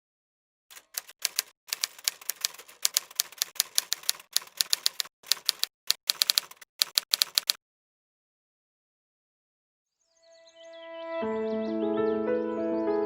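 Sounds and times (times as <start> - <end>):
keyboard typing clicks: 0.7 - 7.6.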